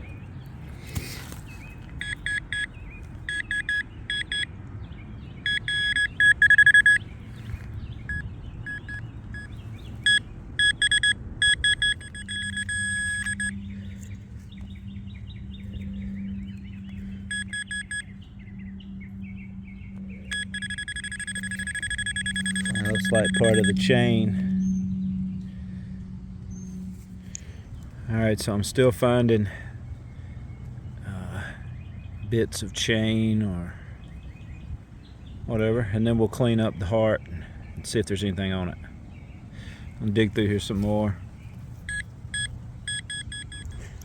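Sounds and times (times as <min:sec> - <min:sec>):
metal detector beeping: 0:02.0 - 0:04.5, 0:05.4 - 0:07.0, 0:08.1 - 0:14.2, 0:17.1 - 0:18.1, 0:20.2 - 0:24.5, 0:41.8 - 0:44.0.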